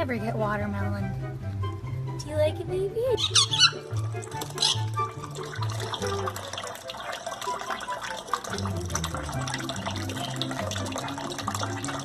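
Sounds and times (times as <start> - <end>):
background music with bass: 0.0 - 6.4
parrot eating wet clicking: 3.2 - 12.0.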